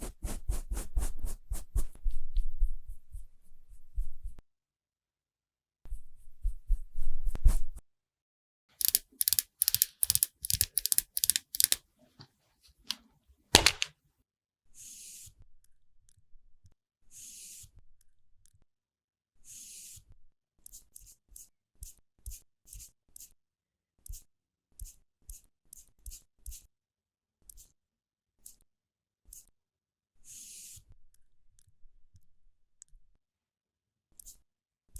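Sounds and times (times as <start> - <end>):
sharp click: 8.8 - 11.8, 13.6 - 13.9.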